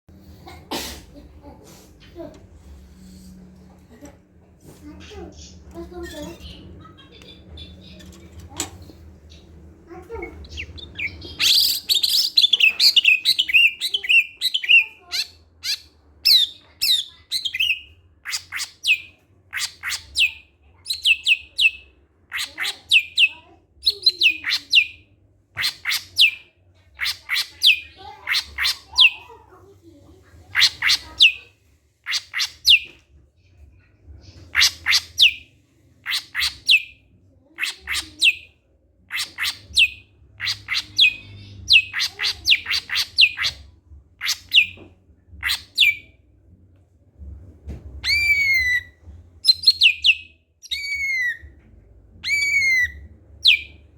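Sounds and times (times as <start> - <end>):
bird warbling and whistling: 48.0 - 51.4, 52.2 - 53.7.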